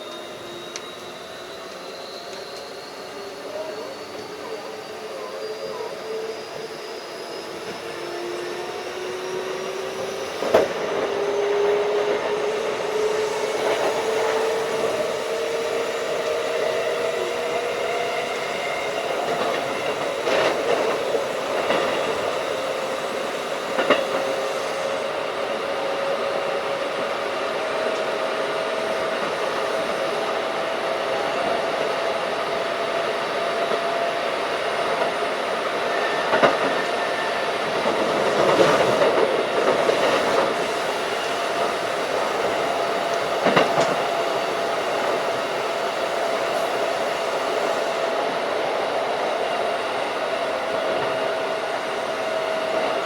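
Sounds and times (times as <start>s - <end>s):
electric train motor whine: 0.0s - 53.0s
train rolling noise: 0.0s - 53.0s
train wheels knocking: 27.8s - 53.0s.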